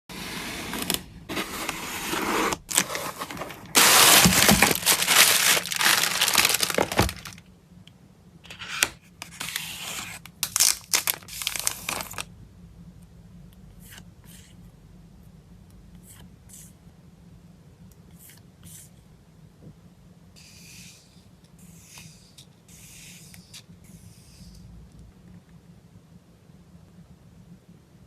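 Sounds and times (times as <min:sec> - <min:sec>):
packaging tearing: 0:02.5 - 0:07.4, 0:09.3 - 0:12.3
packaging crinkling and rustling: 0:02.6 - 0:07.4, 0:10.4 - 0:12.3.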